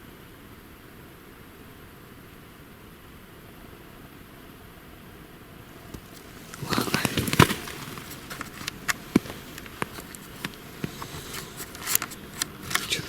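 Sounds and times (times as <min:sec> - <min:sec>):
leaf litter rustling: 0:05.8 - 0:13.0
twigs cracking: 0:05.8 - 0:13.0
footsteps through undergrowth: 0:06.0 - 0:13.0.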